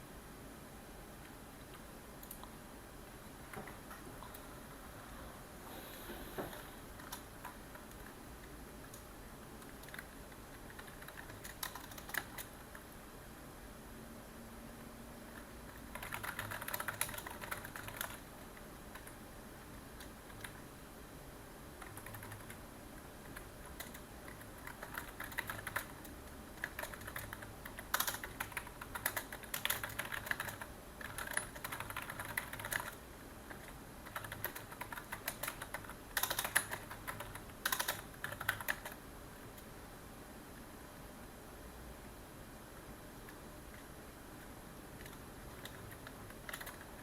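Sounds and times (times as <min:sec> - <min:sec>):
computer keyboard typing: 0:06.5 - 0:12.8, 0:15.3 - 0:19.2, 0:20.0 - 0:20.7, 0:21.8 - 0:22.6, 0:23.2 - 0:39.0, 0:45.0 - 0:47.0.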